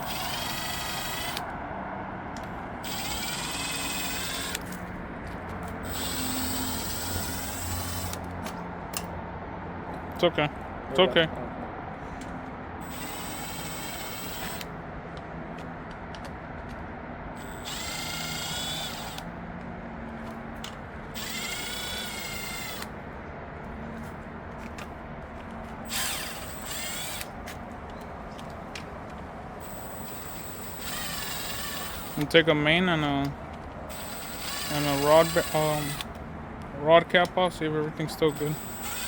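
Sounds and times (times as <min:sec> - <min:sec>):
power tool whirring: 0:00.0 - 0:01.5, 0:02.8 - 0:04.8, 0:05.6 - 0:09.1, 0:12.8 - 0:14.7, 0:17.4 - 0:19.3, 0:20.6 - 0:23.0, 0:25.8 - 0:27.4, 0:29.6 - 0:36.2, 0:38.1 - 0:39.0.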